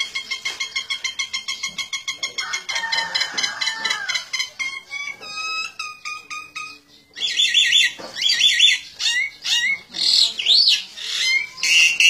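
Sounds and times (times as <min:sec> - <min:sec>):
shrill bird squawks and chirps: 0:03.8 - 0:12.0.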